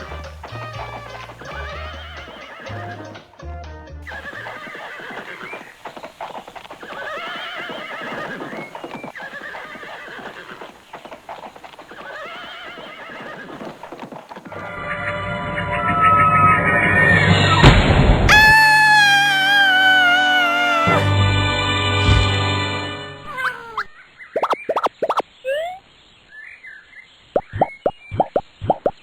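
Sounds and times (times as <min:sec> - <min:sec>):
hooves clip-clopping: 0:00.0 - 0:03.5, 0:04.1 - 0:14.7
horse neighing: 0:01.5 - 0:03.1, 0:04.1 - 0:05.8, 0:06.8 - 0:14.7, 0:23.3 - 0:25.8
cartoon music with bouncing bass: 0:23.3 - 0:25.8.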